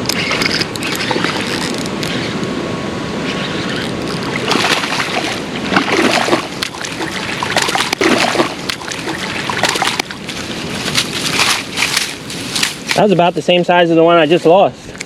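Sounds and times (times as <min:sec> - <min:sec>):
creek rushing: 0:00.0 - 0:14.6
wind noise: 0:00.0 - 0:15.0
fish splashing in water: 0:03.6 - 0:13.0.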